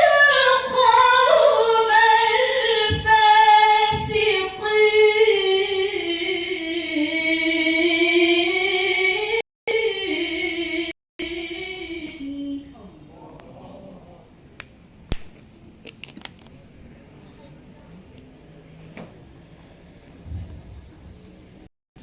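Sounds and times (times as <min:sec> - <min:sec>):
woman's melodic recitation: 0:00.0 - 0:12.8.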